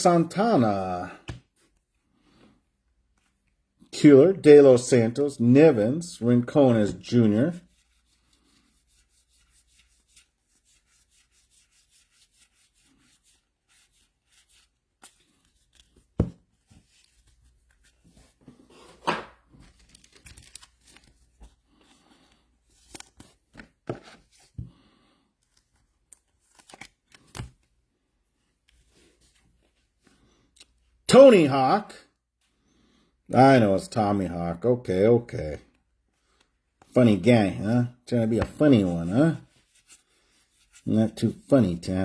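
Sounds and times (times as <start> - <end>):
cards being handled: 12.0 - 27.8, 38.2 - 41.5
card packs being torn open: 19.6 - 21.4, 26.4 - 27.6.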